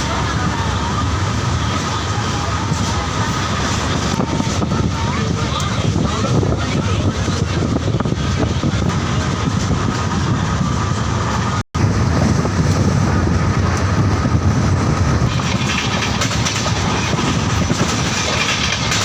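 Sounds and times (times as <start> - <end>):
train wheels rushing on rails: 0.0 - 19.0.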